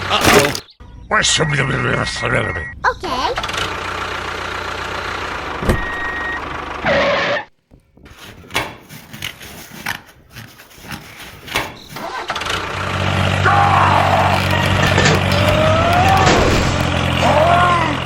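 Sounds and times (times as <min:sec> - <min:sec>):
small engine running: 0:03.4 - 0:07.4, 0:12.0 - 0:18.0.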